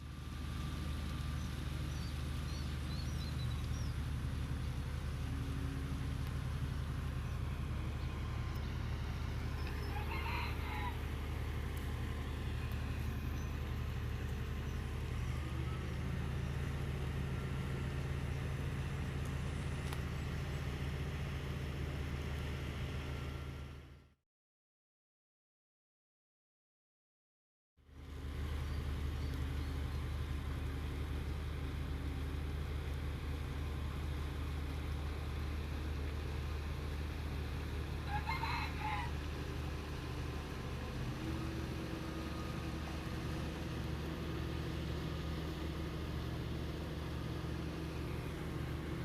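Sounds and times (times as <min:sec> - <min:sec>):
boat engine droning: 0:00.0 - 0:24.0, 0:27.9 - 0:49.0
rooster crowing: 0:09.6 - 0:11.3, 0:38.0 - 0:39.3.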